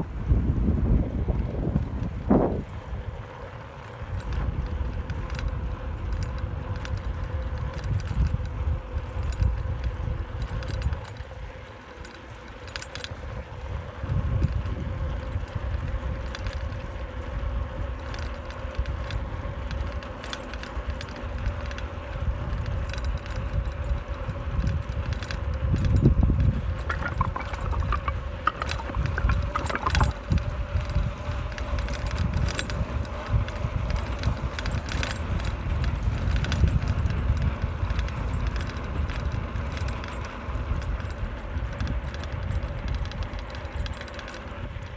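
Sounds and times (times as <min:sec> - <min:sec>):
bicycle rattling over pavement: 0:00.0 - 0:44.9
low rumbling buffeting: 0:24.2 - 0:34.8.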